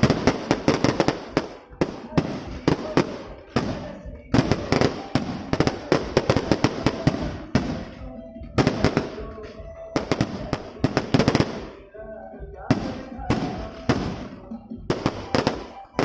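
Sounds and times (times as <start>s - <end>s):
fireworks bangs and crackles: 0.0s - 11.9s, 12.7s - 16.0s.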